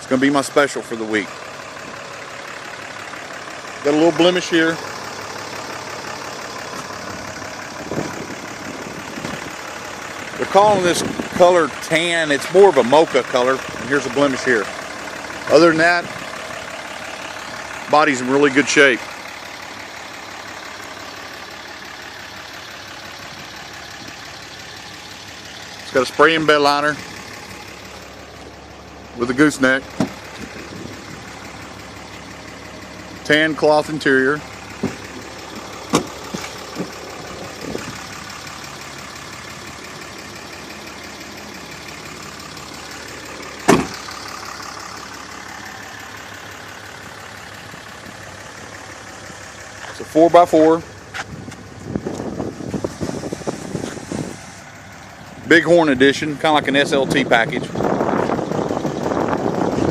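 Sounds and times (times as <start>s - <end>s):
diesel engine idling: 0.0s - 59.9s
sharp loud thud: 43.7s - 44.0s.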